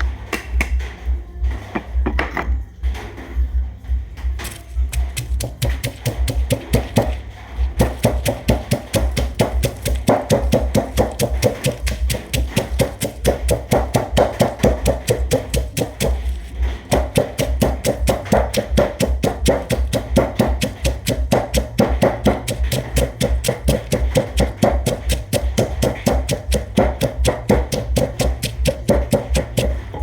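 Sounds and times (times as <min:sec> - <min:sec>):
pestle pounding in a mortar: 0:04.4 - 0:30.0.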